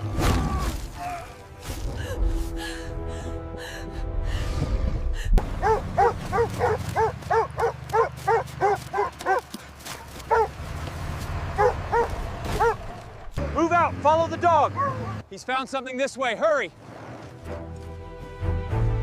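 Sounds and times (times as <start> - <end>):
dog barking: 5.6 - 9.5, 10.3 - 10.6, 11.6 - 12.8.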